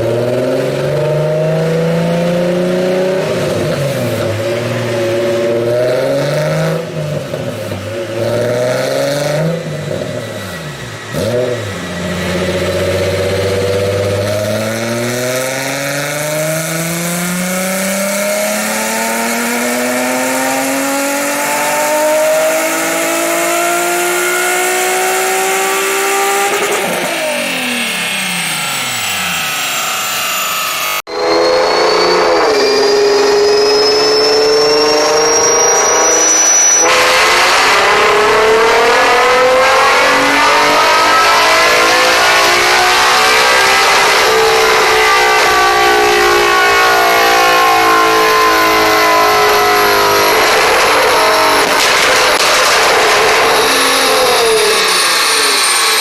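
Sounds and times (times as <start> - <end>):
car engine accelerating: 0.0 - 56.0
thin high whine: 25.8 - 38.2.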